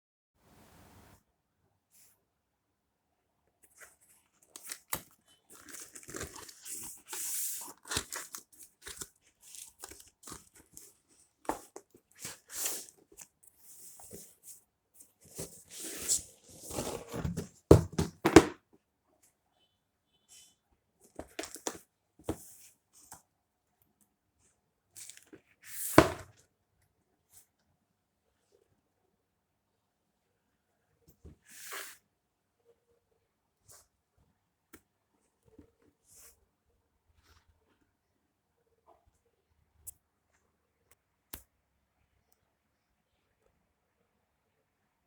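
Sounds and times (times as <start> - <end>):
packaging tearing and crinkling: 4.6 - 6.8.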